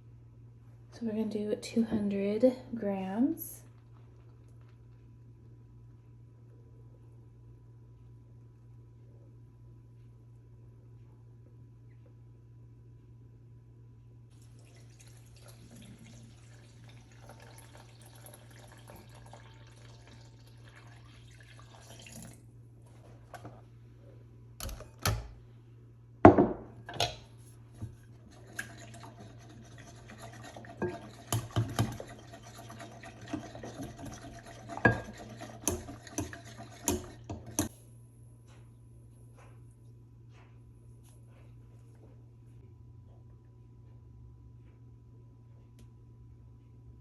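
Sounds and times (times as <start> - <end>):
liquid pouring into a bowl: 14.3 - 22.5, 28.1 - 37.7.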